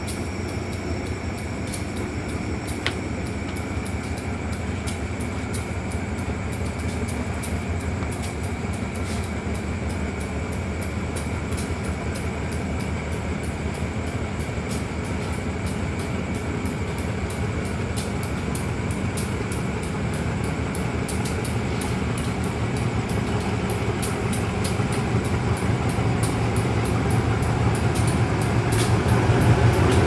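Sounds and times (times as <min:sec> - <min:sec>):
diesel engine low rumble: 0:00.0 - 0:30.0.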